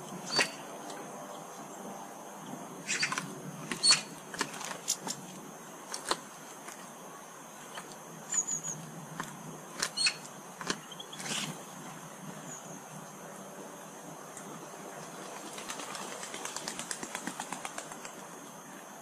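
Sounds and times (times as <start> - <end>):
small birds chirping: 0.0 - 4.2, 7.8 - 9.0, 9.8 - 13.2.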